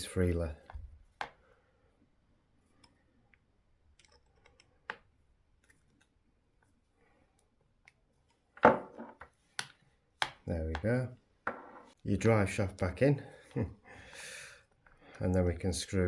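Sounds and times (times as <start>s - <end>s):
clicks of tools and plastic parts: 3.9s - 6.2s.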